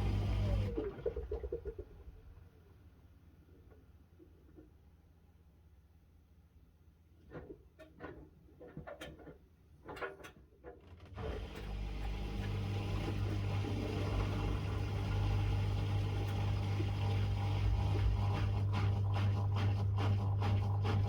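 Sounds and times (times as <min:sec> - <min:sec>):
washing machine humming and rushing: 0:00.0 - 0:01.8, 0:11.2 - 0:21.0.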